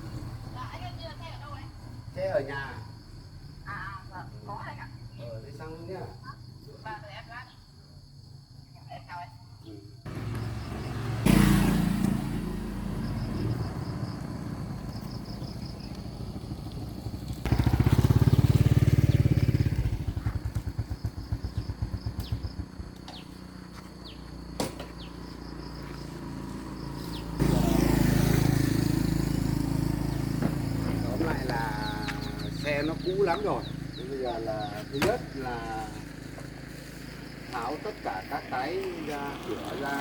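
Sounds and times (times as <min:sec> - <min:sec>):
small vehicle engine running: 0:10.1 - 0:38.2.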